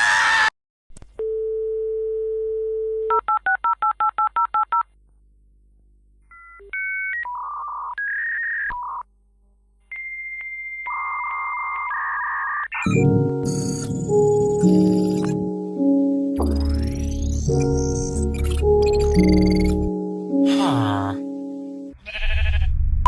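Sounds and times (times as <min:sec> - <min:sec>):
electronic phone-line tones: 0:09.9 - 0:20.1
touch-tone dialling: 0:16.4 - 0:19.9.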